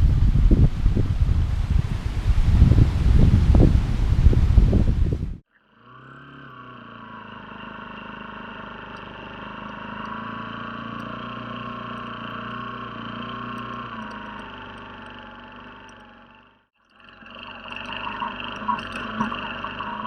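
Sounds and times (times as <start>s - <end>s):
small engine running: 4.6s - 20.0s.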